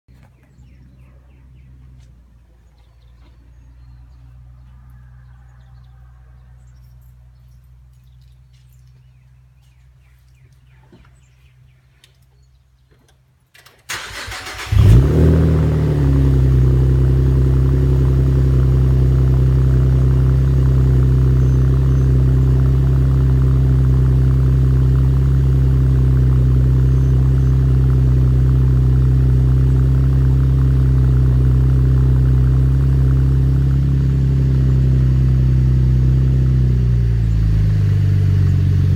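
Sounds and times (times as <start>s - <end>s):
car engine cold start: 13.6s - 17.1s.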